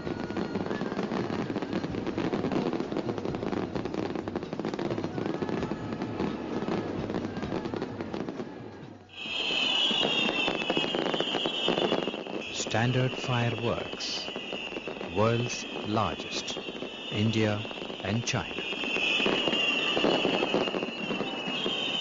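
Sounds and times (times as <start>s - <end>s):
fireworks crackling: 0.0s - 22.0s
high whistle falling in pitch: 9.1s - 22.0s.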